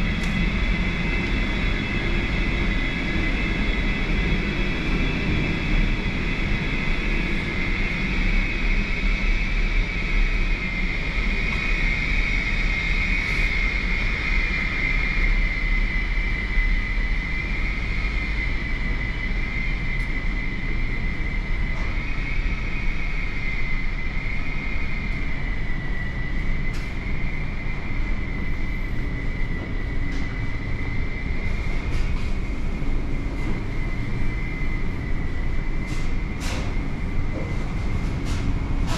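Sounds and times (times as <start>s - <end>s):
mechanical drone with high whine: 0.0s - 38.9s.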